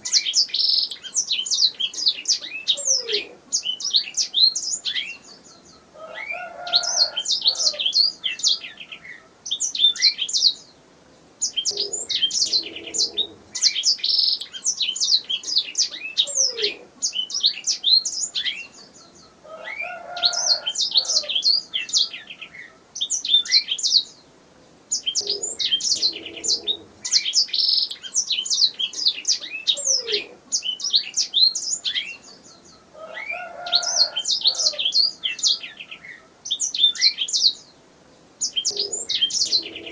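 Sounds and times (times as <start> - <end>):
canary singing chirps and trills: 0.0 - 10.8, 11.4 - 24.3, 24.9 - 39.9.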